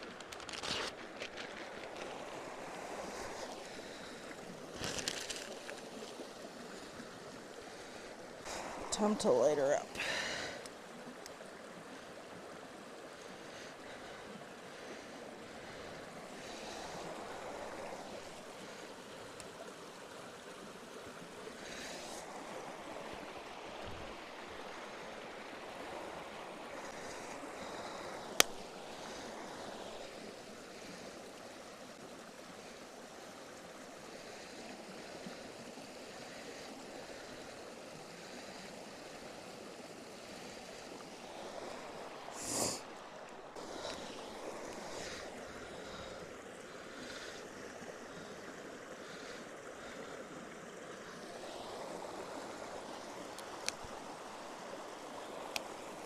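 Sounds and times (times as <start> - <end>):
stream running: 0.0 - 56.0
faint rustling: 4.7 - 6.2.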